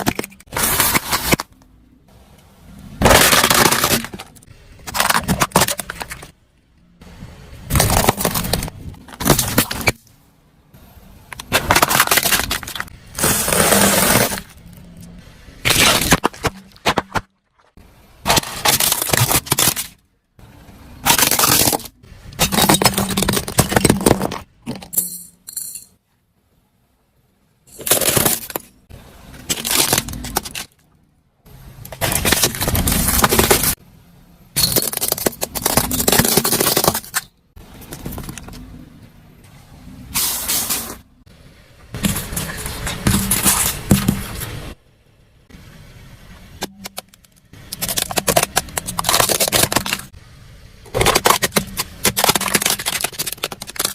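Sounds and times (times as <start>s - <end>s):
objects crunching and breaking: 3.0s - 6.4s, 7.7s - 10.0s, 11.4s - 14.7s, 15.6s - 20.0s, 21.0s - 24.7s, 27.8s - 30.9s, 31.9s - 33.8s, 34.6s - 38.8s, 46.6s - 50.2s, 50.9s - 53.9s.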